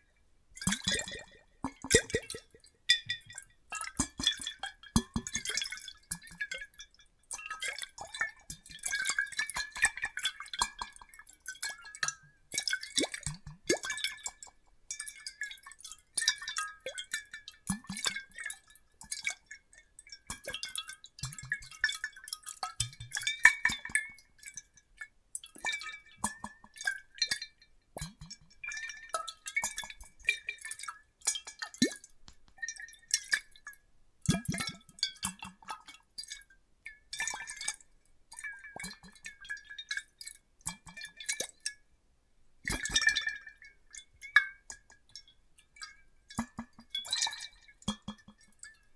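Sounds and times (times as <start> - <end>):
water drips: 0.6 - 41.8, 42.7 - 48.9
water sloshing in glass bottles: 0.6 - 41.8, 42.7 - 48.9.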